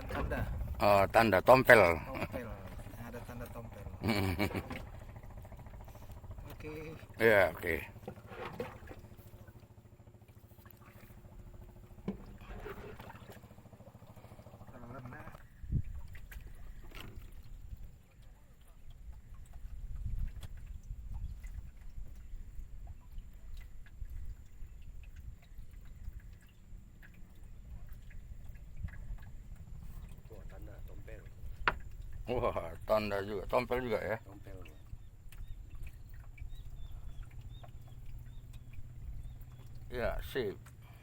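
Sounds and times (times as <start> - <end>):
low rumble: 0.0 - 7.2
boat motor pulsing: 0.0 - 41.0
water dripping and lapping: 0.0 - 41.0.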